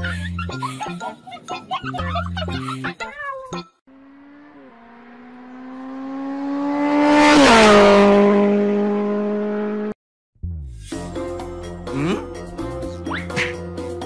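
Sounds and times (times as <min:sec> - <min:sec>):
fast vehicle passing by: 0:03.9 - 0:10.0.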